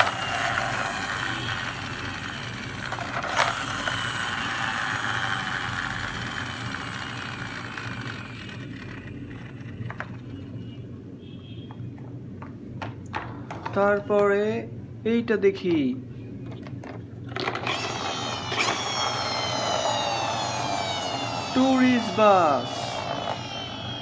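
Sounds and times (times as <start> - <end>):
toy gear motor whirring: 0.0 - 10.4, 17.4 - 24.0.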